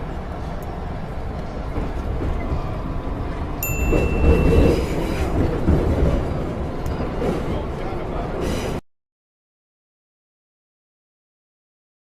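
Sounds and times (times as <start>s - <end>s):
subway train rumbling: 0.0s - 8.8s.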